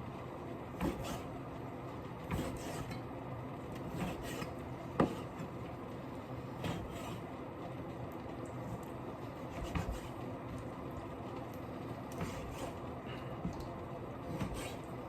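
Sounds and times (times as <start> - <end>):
steady background hum: 0.0 - 15.0
kitchen handling rubs and knocks: 2.2 - 3.0, 9.5 - 10.2, 12.1 - 12.8, 14.3 - 14.9.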